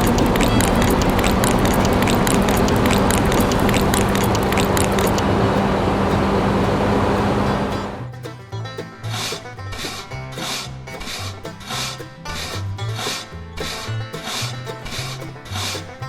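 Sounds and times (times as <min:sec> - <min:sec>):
rapid irregular clicking: 0:00.0 - 0:05.3.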